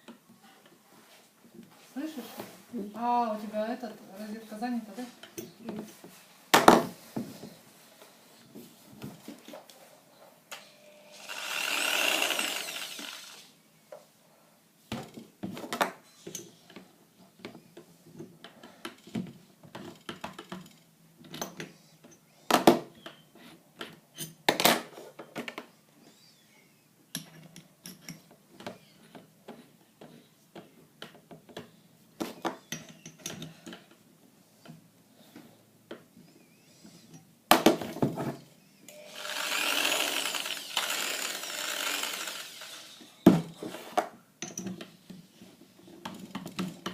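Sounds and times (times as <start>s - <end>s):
electric drill motor whining: 10.6s - 13.5s, 38.9s - 43.2s
clicks and knocks handling drill: 39.2s - 44.9s.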